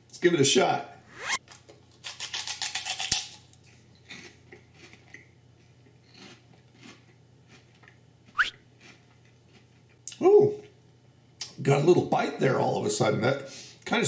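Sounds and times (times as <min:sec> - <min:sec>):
pork rind crunching: 0:01.9 - 0:05.2, 0:06.1 - 0:09.7.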